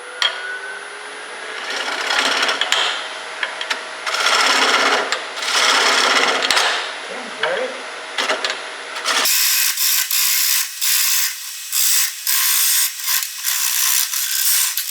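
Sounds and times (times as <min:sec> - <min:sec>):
lathe whine: 0:07.9 - 0:14.9.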